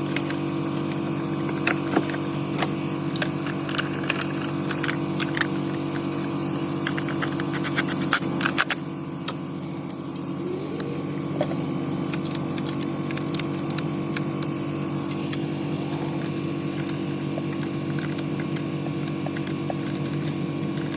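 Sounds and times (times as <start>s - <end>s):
engine idling: 0.0s - 20.9s
sharp clicks: 10.8s - 14.6s, 16.1s - 20.9s.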